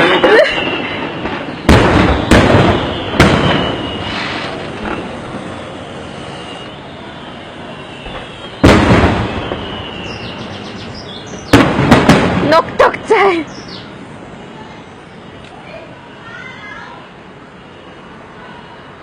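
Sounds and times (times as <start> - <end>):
fireworks booming with echo: 0.0 - 14.5.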